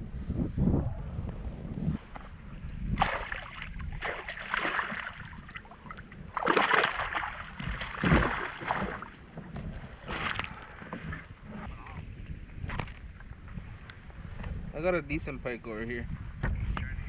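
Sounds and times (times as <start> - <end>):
wind rumble on microphone: 0.0 - 17.0
water splashing against a kayak: 2.0 - 13.6.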